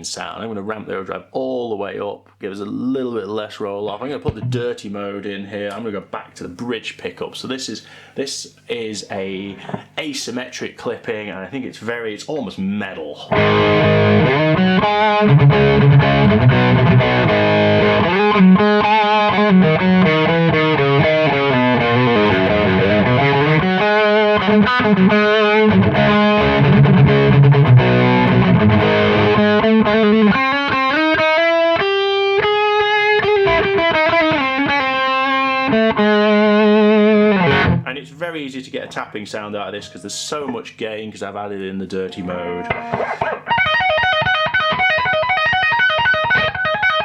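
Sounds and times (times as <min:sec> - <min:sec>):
distorted electric guitar riffing: 0:13.3 - 0:37.8, 0:42.2 - 0:47.0.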